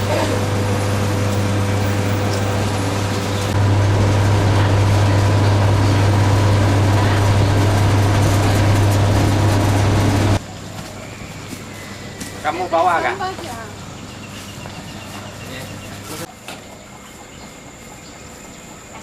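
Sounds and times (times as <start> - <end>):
low mechanical hum: 0.0 - 12.4.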